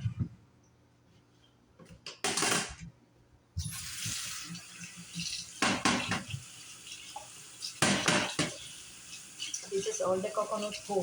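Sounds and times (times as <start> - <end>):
water running in stream: 3.6 - 11.0.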